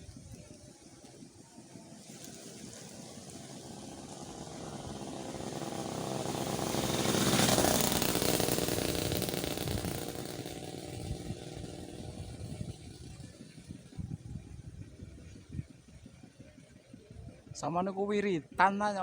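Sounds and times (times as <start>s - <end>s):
motor vehicle passing by: 0.5s - 14.5s.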